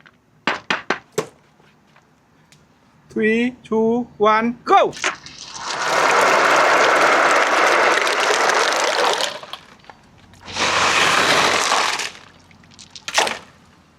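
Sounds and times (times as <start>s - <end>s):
marbles rolling down a ramp: 5.0s - 13.4s.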